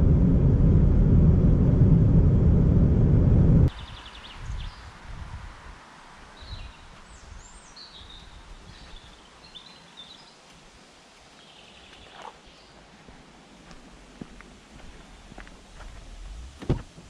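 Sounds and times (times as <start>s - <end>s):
small birds chirping: 3.7s - 5.0s, 6.3s - 10.6s, 11.2s - 13.1s
faint background noise: 3.7s - 17.0s.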